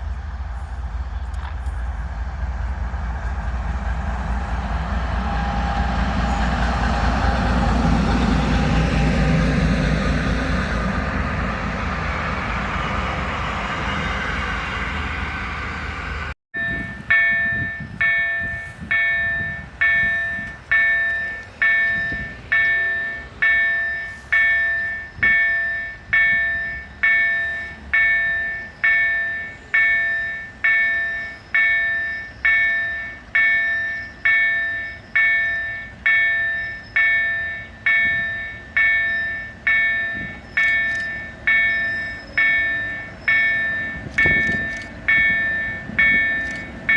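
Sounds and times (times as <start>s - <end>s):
freight train passing: 0.0s - 46.9s
level crossing warning bell: 16.6s - 46.9s.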